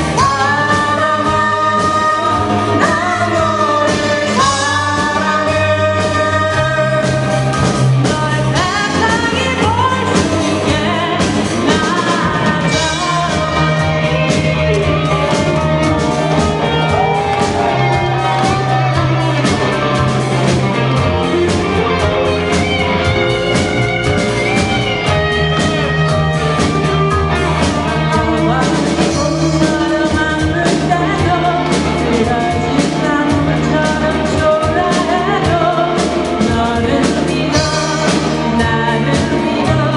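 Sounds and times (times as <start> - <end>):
bass guitar: 0.0 - 39.9
drum kit beat: 0.0 - 39.9
person singing: 0.0 - 39.9.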